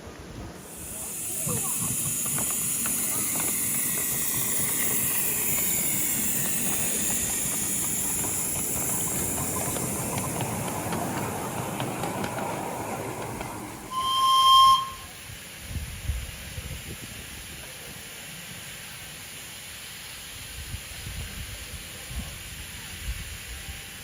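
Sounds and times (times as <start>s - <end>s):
steam locomotive hissing: 0.0s - 24.0s
steam whistle toot: 13.9s - 15.2s.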